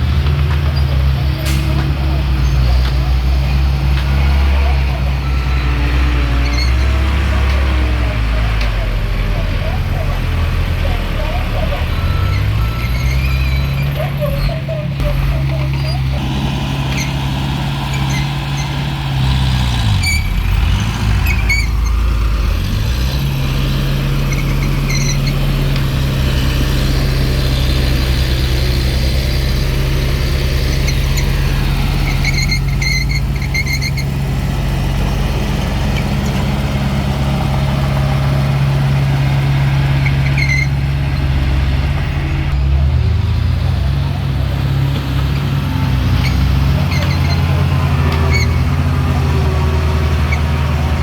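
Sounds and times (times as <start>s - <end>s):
heavy diesel engine running: 0.0s - 51.0s
short high squeaks: 12.0s - 16.2s, 17.8s - 18.8s, 19.9s - 20.4s, 21.2s - 22.0s, 24.3s - 25.4s, 32.1s - 34.1s, 40.0s - 40.8s, 46.2s - 48.7s.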